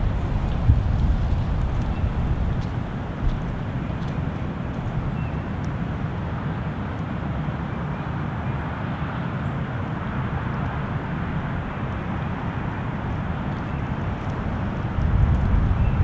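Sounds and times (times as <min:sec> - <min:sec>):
wind buffeting microphone: 0:00.0 - 0:06.4, 0:10.0 - 0:16.0.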